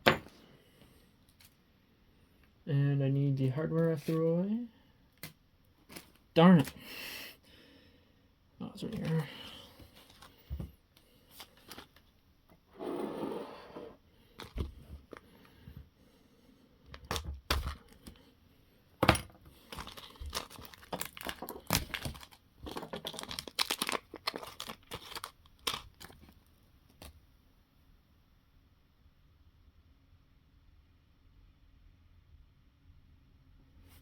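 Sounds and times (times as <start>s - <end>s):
plastic bag crinkling and tearing: 19.6s - 26.4s.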